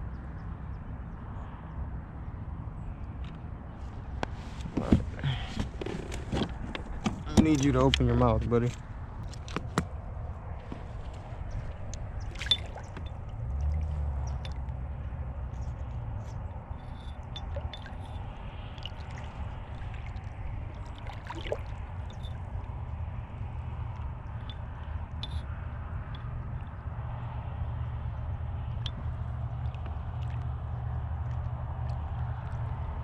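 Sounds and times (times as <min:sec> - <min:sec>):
steady low rumble: 0:02.2 - 0:33.0
water gurgling and dripping: 0:11.5 - 0:14.9, 0:16.8 - 0:25.4, 0:28.7 - 0:32.9.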